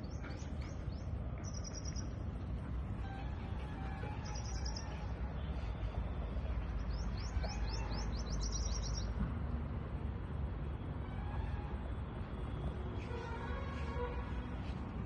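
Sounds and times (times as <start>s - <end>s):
small birds chirping: 0.0s - 2.5s, 4.0s - 5.9s, 6.6s - 9.2s.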